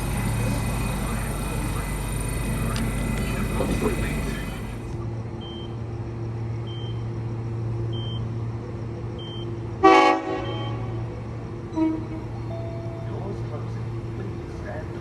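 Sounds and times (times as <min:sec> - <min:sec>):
train low hum: 0:00.0 - 0:15.0
train horn toot: 0:09.8 - 0:11.1, 0:11.7 - 0:12.5.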